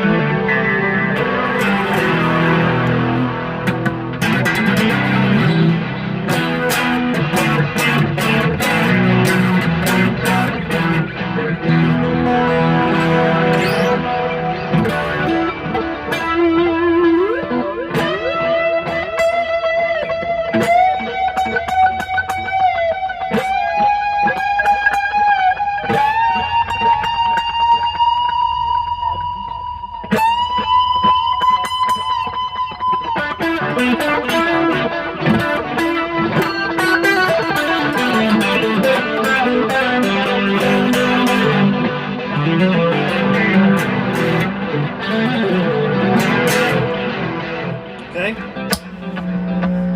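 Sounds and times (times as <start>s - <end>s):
clean electric guitar playing: 0.0s - 49.9s.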